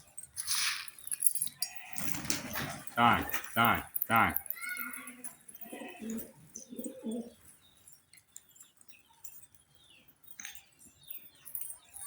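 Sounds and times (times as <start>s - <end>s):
young pigeons cheeping: 0.0s - 12.0s
pigeon cooing: 2.1s - 7.4s.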